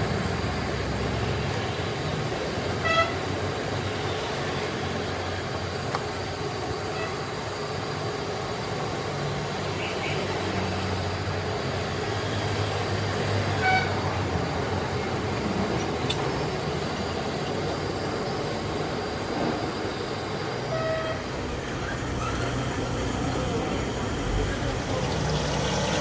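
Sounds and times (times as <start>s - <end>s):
traffic noise with low hum: 0.0s - 26.0s
vehicle horn toots: 2.8s - 3.2s, 13.6s - 14.0s, 20.7s - 21.3s.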